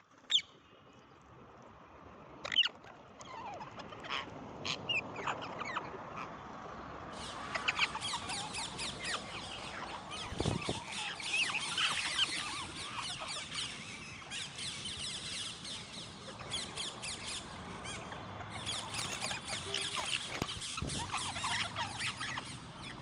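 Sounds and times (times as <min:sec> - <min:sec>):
parrots chattering: 0:16.2 - 0:23.0.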